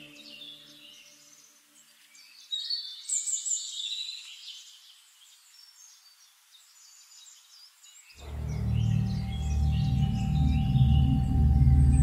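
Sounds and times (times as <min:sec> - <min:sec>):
birds chirping: 0:08.1 - 0:12.0.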